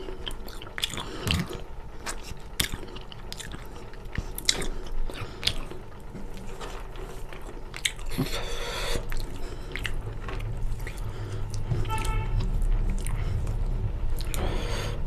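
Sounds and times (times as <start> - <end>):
chewing and biting food: 0.0 - 15.0
noisy rush: 3.7 - 15.0.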